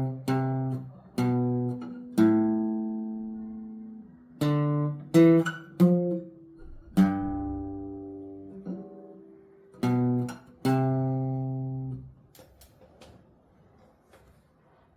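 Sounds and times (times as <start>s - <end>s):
acoustic guitar chords: 0.0s - 12.1s.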